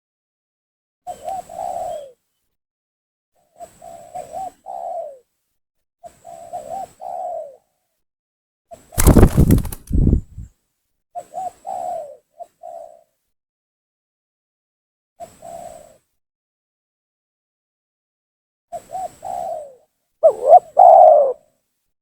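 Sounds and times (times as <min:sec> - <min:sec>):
dove cooing: 0:20.2 - 0:21.4.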